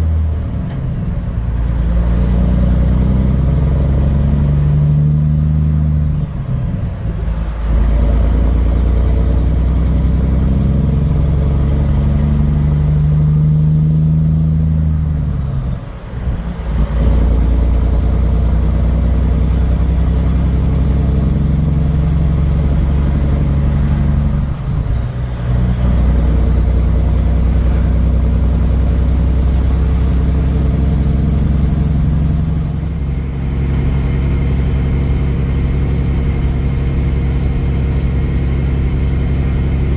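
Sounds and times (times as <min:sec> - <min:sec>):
truck diesel engine pulling: 0:00.0 - 0:39.9
high whistle: 0:19.5 - 0:25.0, 0:27.9 - 0:33.5.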